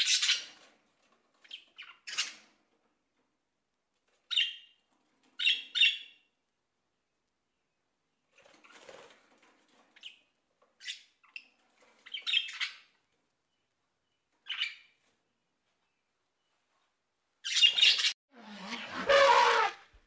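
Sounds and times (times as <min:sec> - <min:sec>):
parrots chirping and squawking: 0:00.0 - 0:00.6, 0:01.4 - 0:02.4, 0:17.4 - 0:19.3
loud parrot call: 0:17.9 - 0:19.9.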